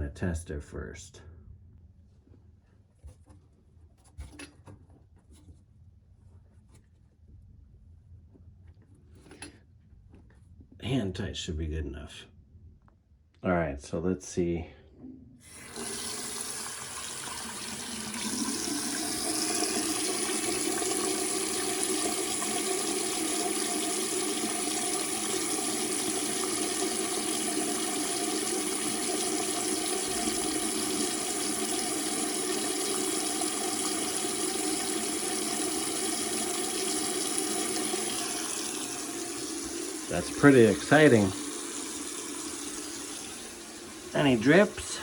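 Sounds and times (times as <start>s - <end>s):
faucet running water into sink: 15.5s - 45.0s
water draining down pipe: 15.5s - 45.0s.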